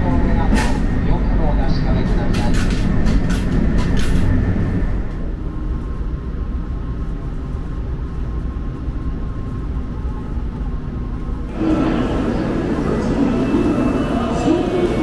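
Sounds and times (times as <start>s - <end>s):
train carriage rumble and hum: 0.0s - 15.0s.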